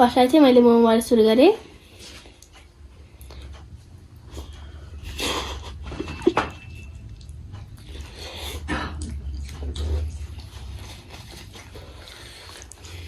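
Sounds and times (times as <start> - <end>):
steady low hum: 0.0 - 13.0
close-miked chewing: 6.9 - 13.0.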